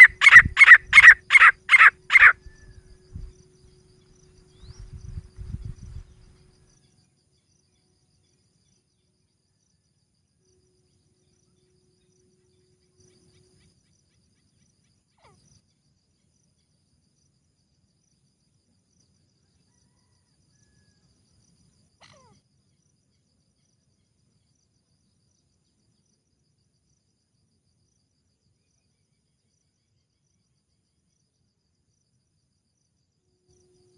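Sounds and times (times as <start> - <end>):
insects chirring: 0.0 - 8.8.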